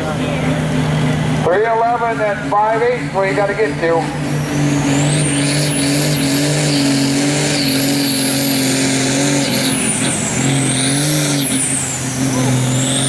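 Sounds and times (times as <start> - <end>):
tractor diesel engine at full load: 0.0 - 13.0
turbo whistle: 4.4 - 13.0.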